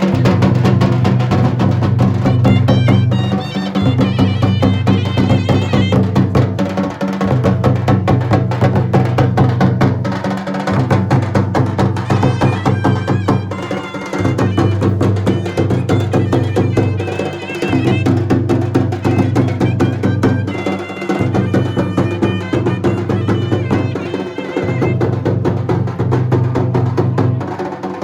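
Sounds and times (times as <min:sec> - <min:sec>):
fast drumming: 0:00.0 - 0:28.0
wavering high melody: 0:02.4 - 0:06.1, 0:12.0 - 0:18.0.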